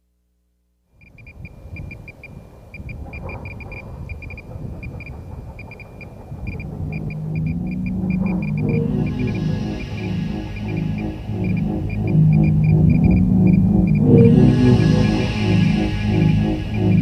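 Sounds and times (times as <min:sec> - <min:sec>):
low rumble: 0:03.8 - 0:17.0
low droning music: 0:06.2 - 0:17.0.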